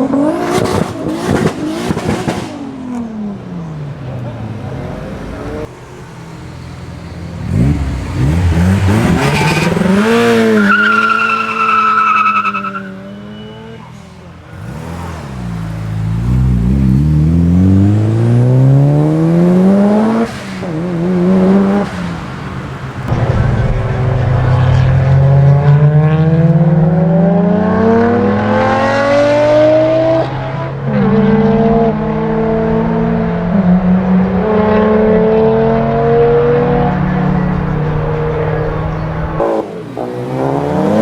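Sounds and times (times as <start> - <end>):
car engine revving: 0.0 - 41.0
tyres squealing: 8.8 - 14.3.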